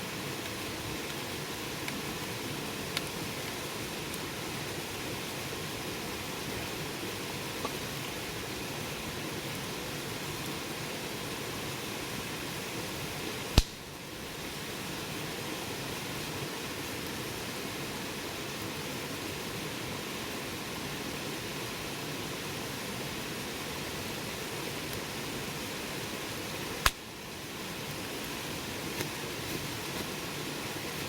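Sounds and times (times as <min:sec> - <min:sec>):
wood fire hissing: 0:00.0 - 0:31.0
burning wood popping: 0:13.5 - 0:13.9, 0:26.8 - 0:27.1.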